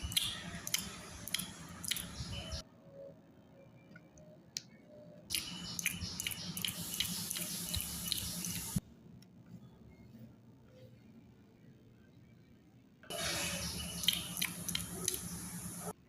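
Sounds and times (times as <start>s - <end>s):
jelly candy being chewed: 0.1s - 2.1s.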